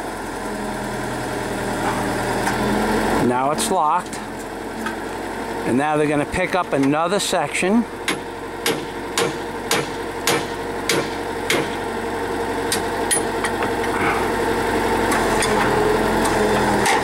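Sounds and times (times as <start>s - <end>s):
drill rig engine running: 0.0s - 17.0s
sharp metallic knocks: 8.0s - 11.8s.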